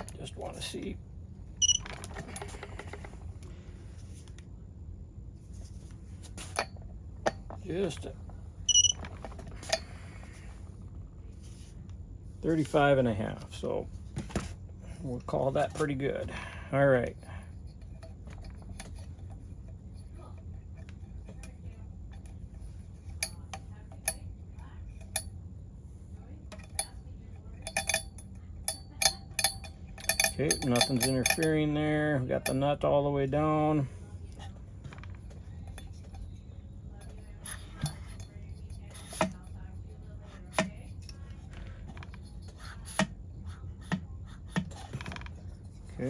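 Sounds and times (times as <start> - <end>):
steady low hum: 0.0 - 46.0
metal tools clicking on bench: 27.6 - 31.6.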